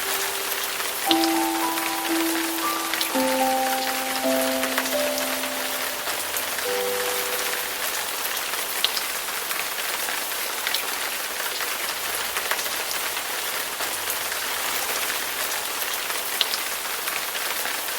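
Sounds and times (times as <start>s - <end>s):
song notes: 0.0s - 8.2s
steady rain falling: 0.0s - 17.9s.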